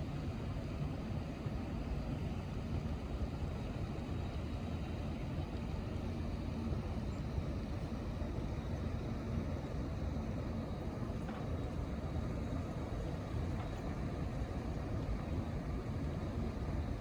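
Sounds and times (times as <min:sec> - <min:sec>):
faint steady hum: 0:00.0 - 0:17.0
low engine rumble: 0:00.1 - 0:17.0.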